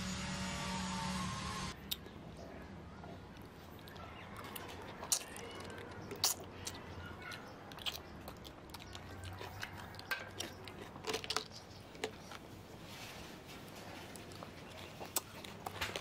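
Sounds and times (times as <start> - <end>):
person chewing: 3.4 - 16.0.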